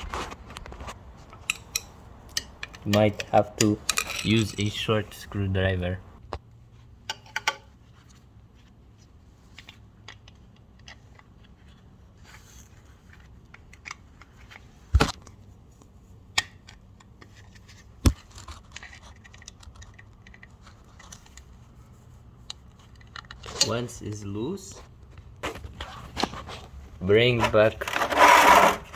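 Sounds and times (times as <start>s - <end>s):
screwdriver metal clicks and scrapes: 0.8s - 4.8s, 16.3s - 21.6s, 22.4s - 23.9s.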